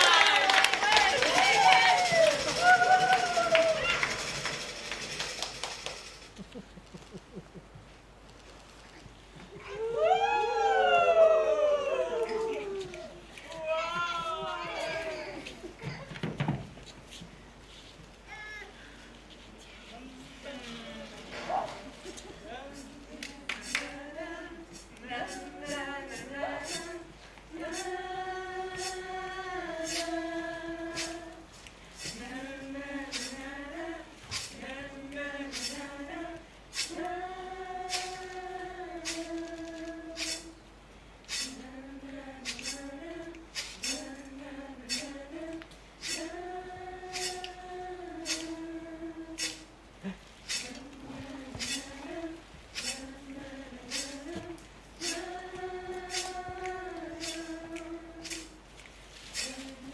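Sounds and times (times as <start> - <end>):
voices singing slow melody: 9.3 - 15.8, 21.8 - 59.9
sharp hiss beat: 22.8 - 59.9.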